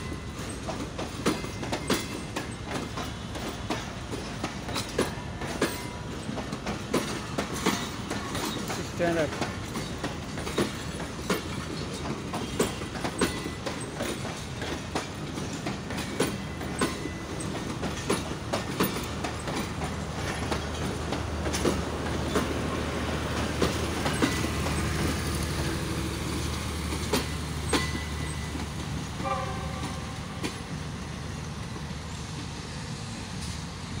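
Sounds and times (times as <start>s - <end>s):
train wheels clacking over rail joints: 0.0s - 30.8s
steady train rumble: 0.0s - 34.0s
train horn: 29.2s - 30.3s.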